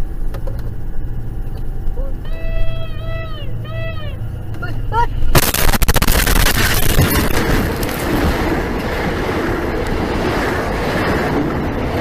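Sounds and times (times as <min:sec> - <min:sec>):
train crash and clatter: 0:05.4 - 0:09.2
train rolling rumble: 0:06.0 - 0:12.0.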